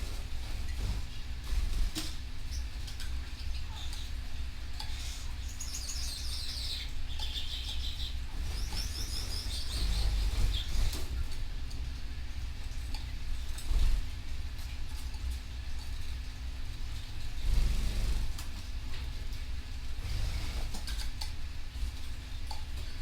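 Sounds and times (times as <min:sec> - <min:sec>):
canaries chirping: 0:00.0 - 0:11.2
low background rumble: 0:00.0 - 0:23.0.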